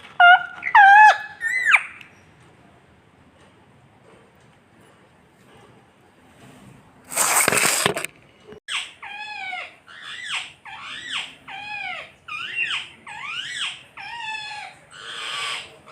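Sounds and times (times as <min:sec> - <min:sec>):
parrot squawking: 0:00.2 - 0:02.0, 0:08.7 - 0:15.9.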